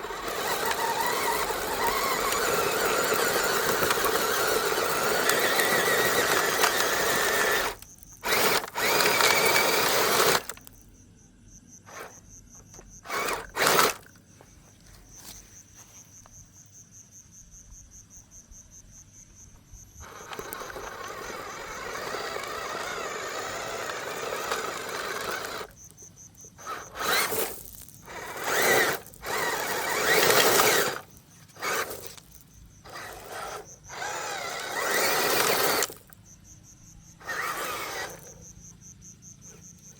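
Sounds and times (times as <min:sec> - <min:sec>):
toy electric motor whirring: 0:00.0 - 0:10.8, 0:11.9 - 0:14.2, 0:20.0 - 0:36.2, 0:37.2 - 0:38.6.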